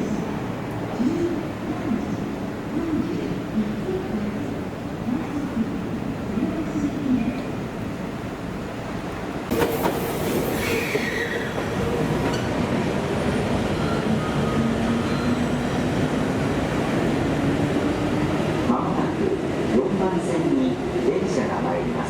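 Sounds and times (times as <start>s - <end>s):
train wheels rumbling on rail: 8.8s - 22.0s
wheel squeal: 9.6s - 12.6s.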